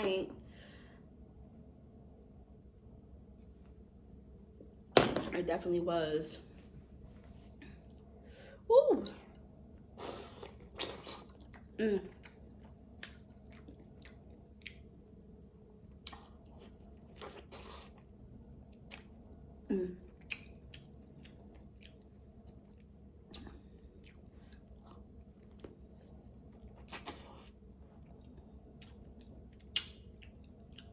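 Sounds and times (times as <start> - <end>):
person chewing food: 10.1 - 15.1, 15.9 - 19.3, 20.1 - 30.9.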